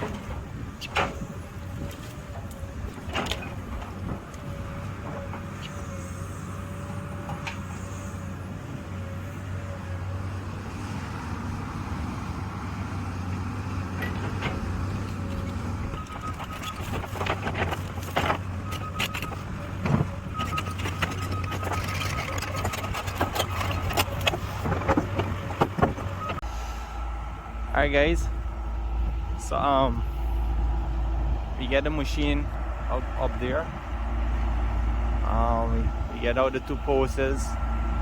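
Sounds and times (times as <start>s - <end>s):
excavator diesel engine running: 0.0s - 38.0s
machine knocks and clanks: 16.0s - 26.4s.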